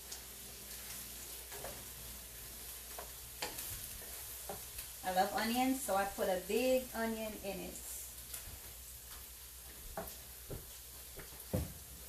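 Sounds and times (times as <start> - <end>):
vegetables sizzling in a frying pan: 0.0 - 12.0
spatula tapping a pan: 2.9 - 3.8, 4.4 - 4.8, 9.9 - 11.7.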